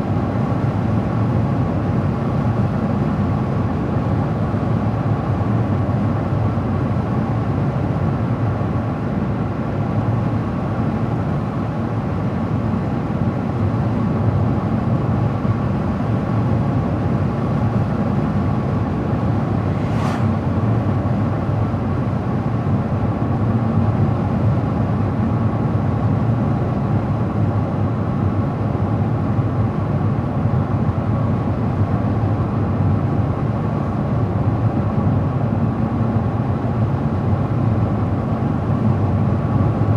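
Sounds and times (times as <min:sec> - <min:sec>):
car road noise: 0:07.1 - 0:21.8
brief sharp hiss: 0:19.2 - 0:21.0.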